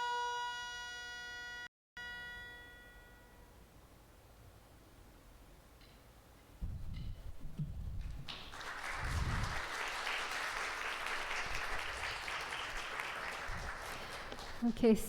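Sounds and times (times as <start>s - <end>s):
audience applauding: 8.3s - 14.8s.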